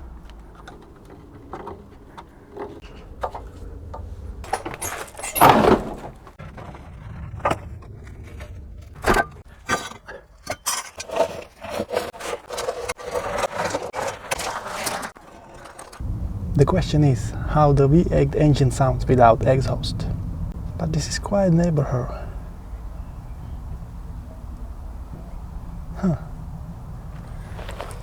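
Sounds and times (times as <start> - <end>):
hand tools clinking on metal: 4.4 - 6.1.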